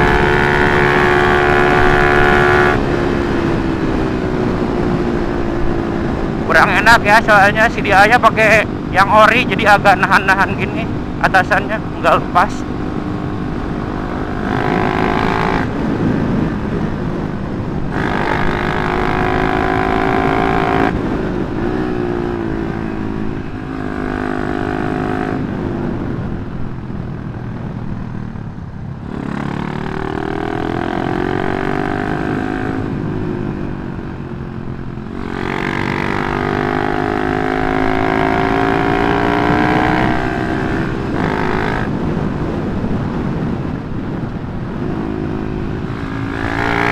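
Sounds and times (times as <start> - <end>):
motorcycle engine revving: 0.0 - 28.4, 29.0 - 46.9.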